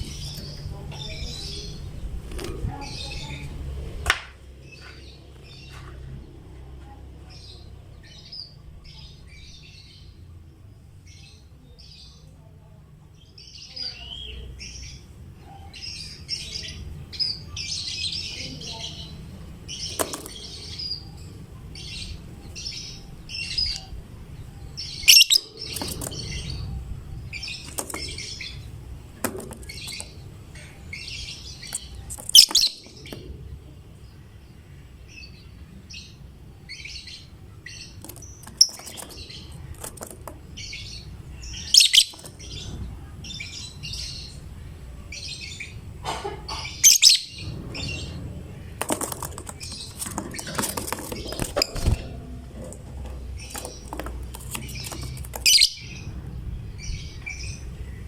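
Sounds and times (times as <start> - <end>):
lovebird chirping: 15.6 - 28.7, 29.6 - 33.3, 40.5 - 44.5, 46.5 - 48.2, 53.3 - 58.0.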